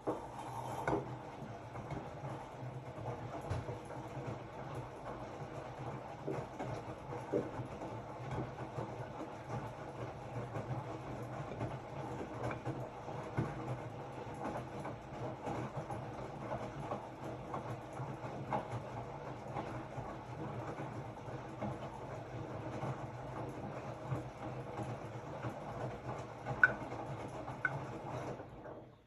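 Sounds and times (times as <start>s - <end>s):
washing machine motor hum: 0.0s - 29.0s.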